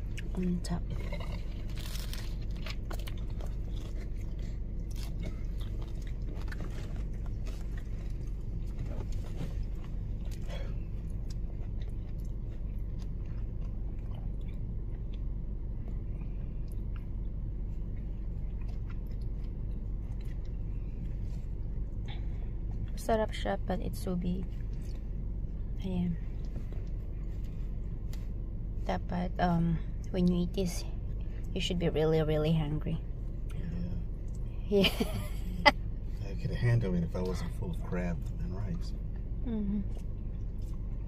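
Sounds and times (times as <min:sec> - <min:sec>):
crunchy chewing: 0:00.0 - 0:23.0, 0:24.4 - 0:28.5, 0:38.2 - 0:41.0
steady low hum: 0:00.0 - 0:41.0.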